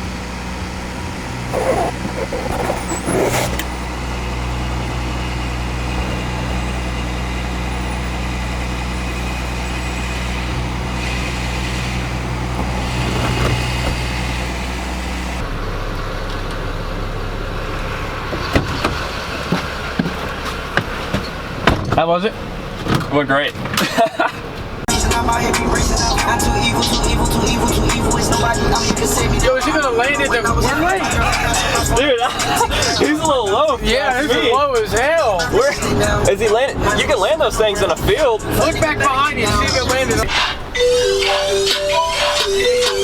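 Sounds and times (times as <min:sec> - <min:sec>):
van engine idling: 0:00.0 - 0:43.0
clunks: 0:00.8 - 0:16.9, 0:17.7 - 0:24.9.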